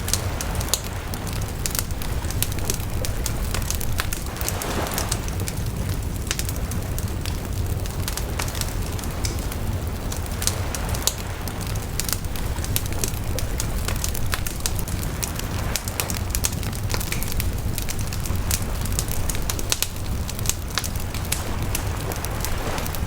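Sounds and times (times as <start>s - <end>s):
wood bonfire crackling and popping: 0.0s - 23.0s.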